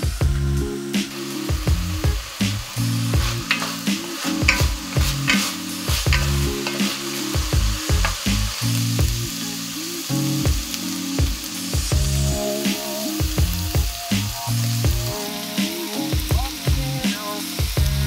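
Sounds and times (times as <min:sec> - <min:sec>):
background music: 0:00.0 - 0:18.0
meat sizzling in oil: 0:00.0 - 0:18.0
wooden spoon scraping a pot: 0:02.6 - 0:08.7.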